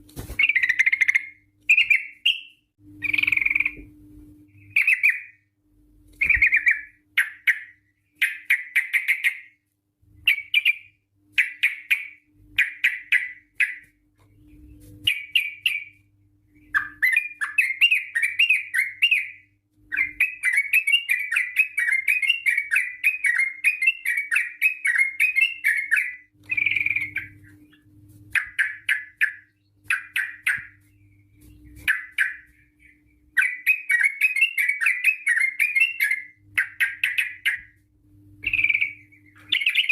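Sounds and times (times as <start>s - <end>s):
bird singing chattering phrases: 38.4s - 39.9s.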